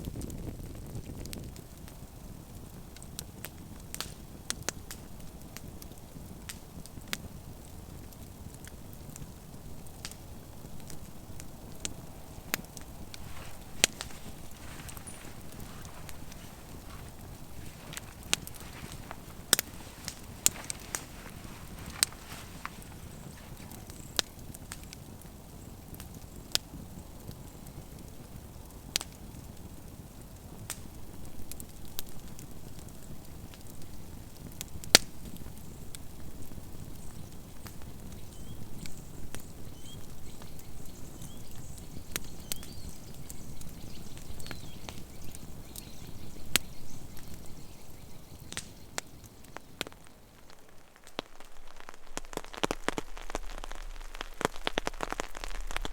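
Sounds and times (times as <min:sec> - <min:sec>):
campfire crackling and popping: 0:00.0 - 0:55.9
low hiss: 0:00.0 - 0:55.9.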